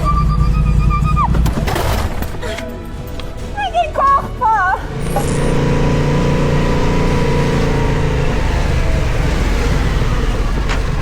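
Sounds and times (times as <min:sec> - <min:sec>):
wind and road noise: 0:04.8 - 0:11.0
motorcycle engine running: 0:04.9 - 0:11.0.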